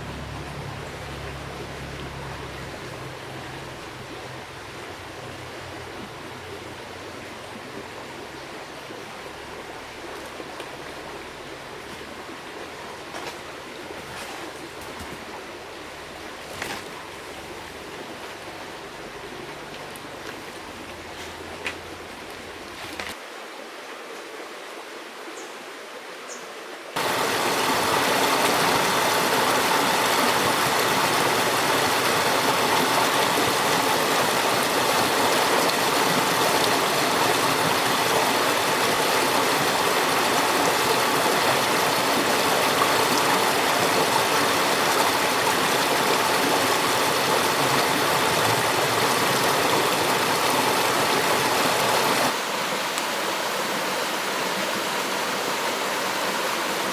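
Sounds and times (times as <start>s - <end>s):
rushing river water: 0.0s - 56.9s.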